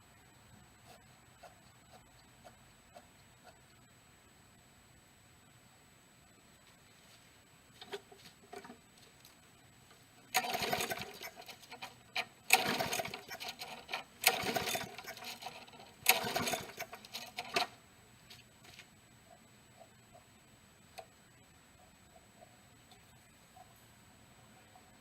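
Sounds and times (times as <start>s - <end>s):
mower engine cranking without starting: 10.3s - 17.7s.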